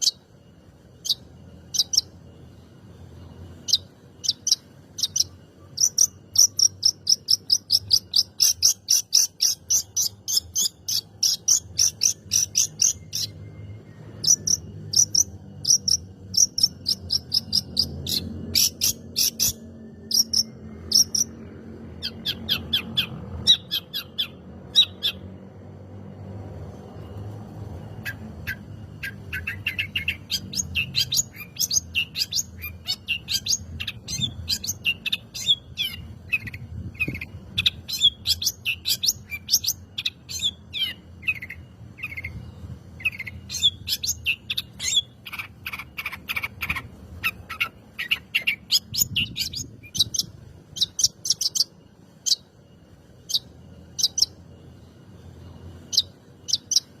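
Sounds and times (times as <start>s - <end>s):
bird singing high sharp notes: 0.0s - 21.4s.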